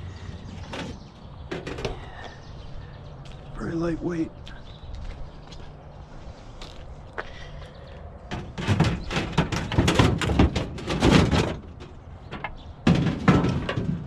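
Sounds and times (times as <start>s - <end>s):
junk knocking and rattling: 0.4s - 2.2s, 8.3s - 14.0s.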